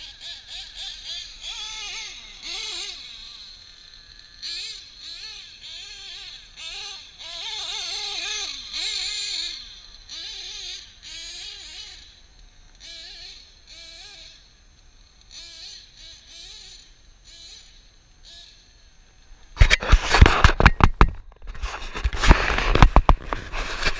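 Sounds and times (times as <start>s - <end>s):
model nitro engine revving: 0.0s - 14.5s, 15.3s - 18.9s.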